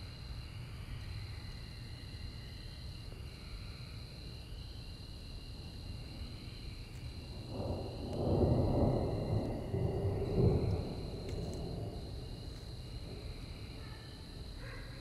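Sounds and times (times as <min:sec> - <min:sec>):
crickets trilling: 0:00.0 - 0:15.0
thunder rolling: 0:07.5 - 0:12.2.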